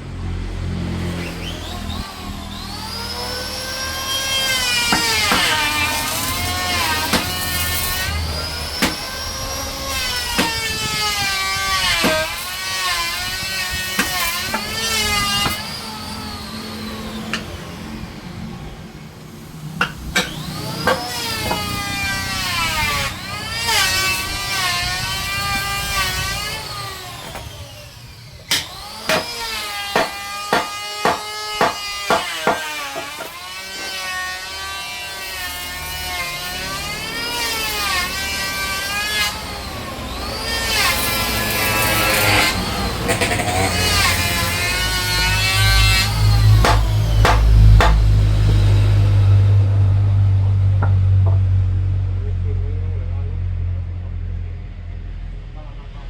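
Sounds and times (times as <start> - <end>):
power saw cutting wood: 0.0 - 51.5
sharp knocks: 4.9 - 5.7, 7.1 - 7.8, 8.8 - 9.1, 10.4 - 10.8, 19.8 - 21.7, 28.5 - 33.4, 46.6 - 48.6.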